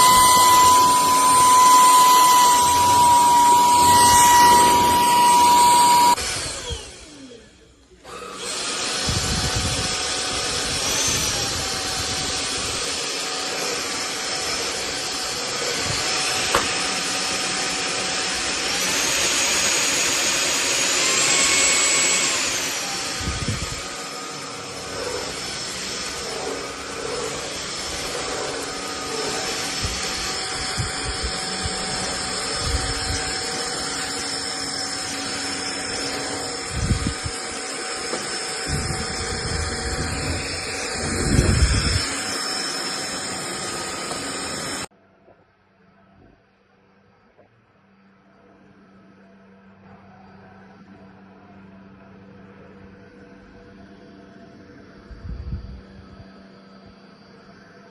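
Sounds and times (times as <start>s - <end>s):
vacuum motor whining: 0.0s - 44.9s.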